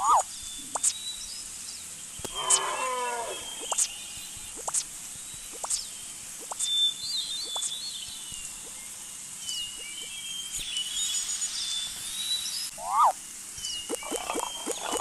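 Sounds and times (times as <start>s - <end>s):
steady background hiss: 0.0s - 15.0s
warbling whistles: 2.2s - 4.0s, 12.7s - 15.0s
sharp rising chirps: 2.3s - 4.8s.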